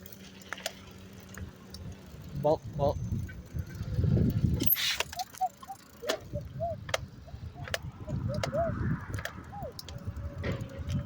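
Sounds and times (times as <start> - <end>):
sharp bicycle clicks: 0.0 - 2.4, 3.2 - 11.0
wind and road rumble: 0.0 - 11.0
short squeaks: 4.6 - 6.3.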